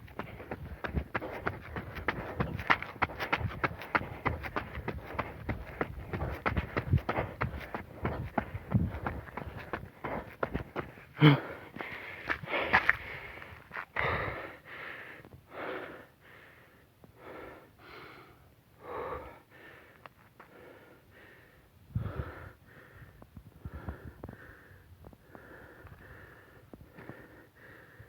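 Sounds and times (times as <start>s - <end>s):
person breathing hard: 0.0s - 28.0s.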